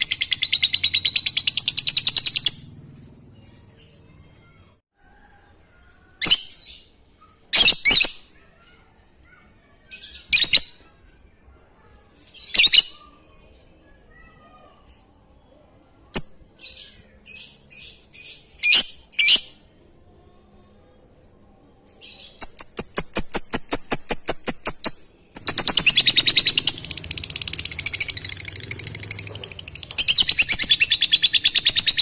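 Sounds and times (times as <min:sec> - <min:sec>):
lovebird chirping: 0:22.3 - 0:32.0.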